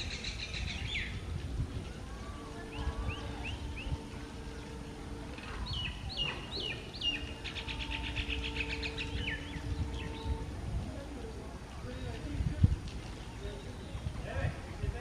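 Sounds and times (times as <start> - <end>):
birds chirping and whistling: 0.0 - 1.2, 2.5 - 10.4
faint steady hum: 0.0 - 15.0.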